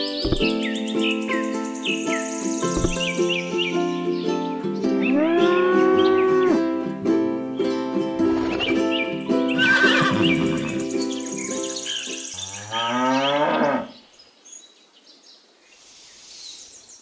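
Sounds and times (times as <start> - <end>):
plucked-string background music: 0.0 - 12.3
cow mooing: 12.4 - 13.9.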